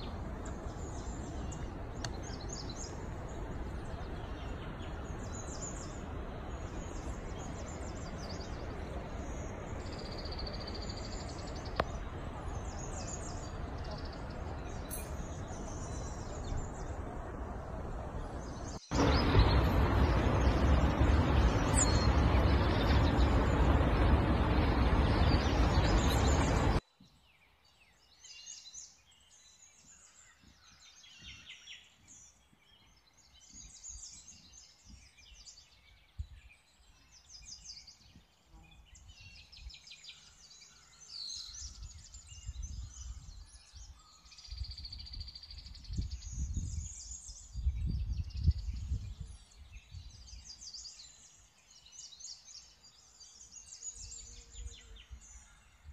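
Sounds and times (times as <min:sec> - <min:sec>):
low rumbles: 0:00.0 - 0:26.8
birds chirping and singing: 0:00.0 - 0:55.9
loud steady rushing noise: 0:16.2 - 0:26.8.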